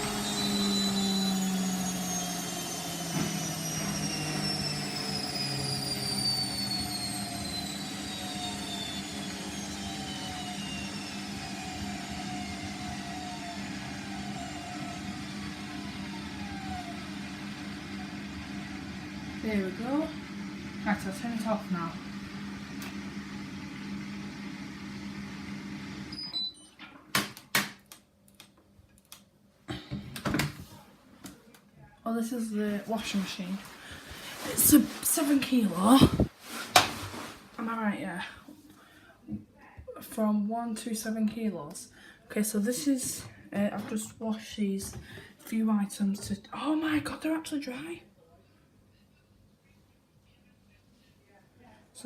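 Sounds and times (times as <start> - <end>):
washing machine spin whine: 0.0 - 26.8.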